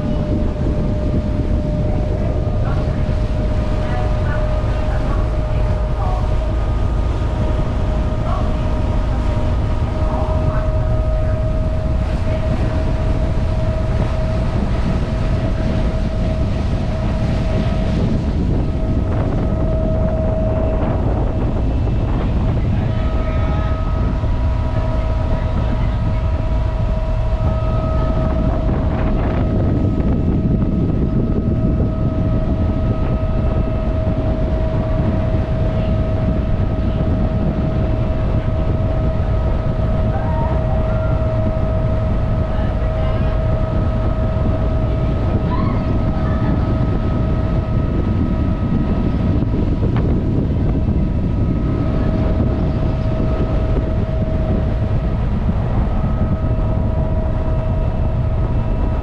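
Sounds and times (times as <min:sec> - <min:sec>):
constant hum: 0:00.0 - 0:59.0
ferry engine rumble: 0:00.0 - 0:59.0
wind on microphone: 0:00.0 - 0:59.0.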